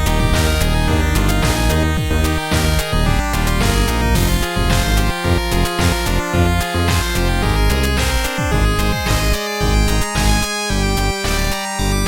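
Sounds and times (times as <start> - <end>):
kick drums dropping in pitch: 0.0 - 11.0
synthesized chiptune tones: 0.0 - 12.0.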